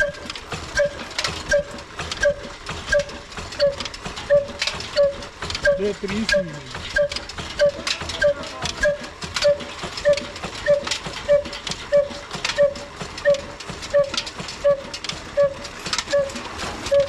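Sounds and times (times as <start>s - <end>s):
old diesel engine knocking: 0.0s - 17.0s.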